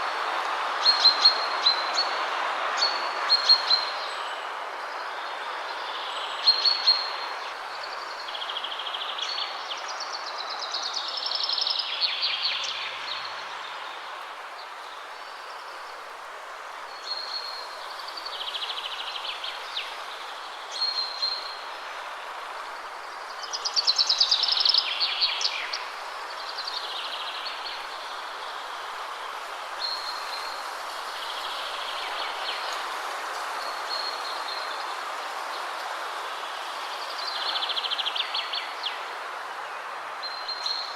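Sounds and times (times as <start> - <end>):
wind rushing through trees: 0.0 - 40.9
songbirds singing: 16.8 - 40.9.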